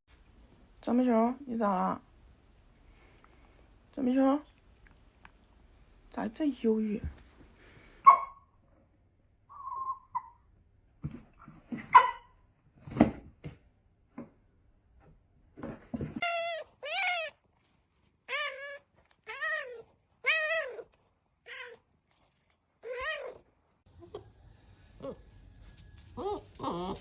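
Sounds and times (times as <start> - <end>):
knocks and rustles: 15.0 - 16.2
cat meowing: 22.8 - 23.4.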